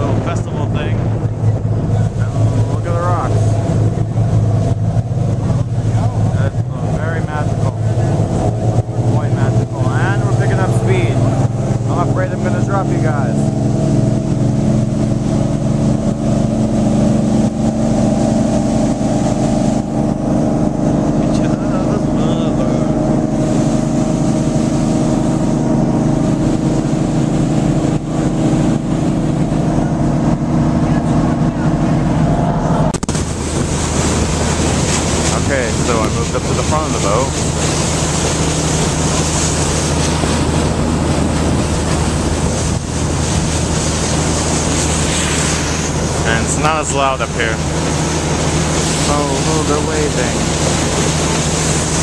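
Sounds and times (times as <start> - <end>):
boat engine running: 0.0 - 52.0
rushing water noise: 0.0 - 52.0
wind buffeting microphone: 0.0 - 52.0.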